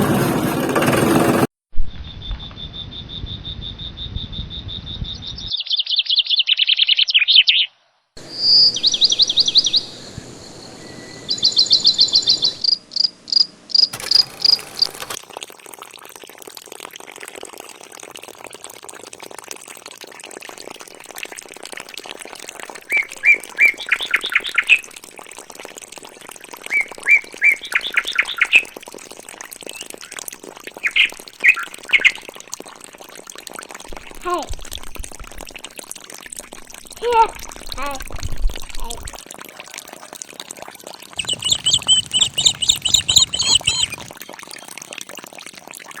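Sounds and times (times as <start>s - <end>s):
high chirps and trills: 41.2s - 44.2s.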